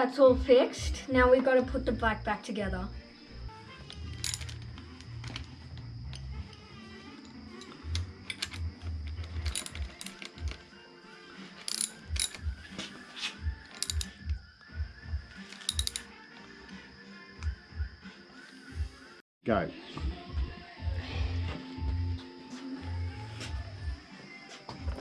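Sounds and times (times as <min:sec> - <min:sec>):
metal hand tools clinking: 0:03.8 - 0:06.6, 0:07.2 - 0:10.6, 0:11.6 - 0:12.6, 0:13.7 - 0:14.4, 0:15.4 - 0:16.1.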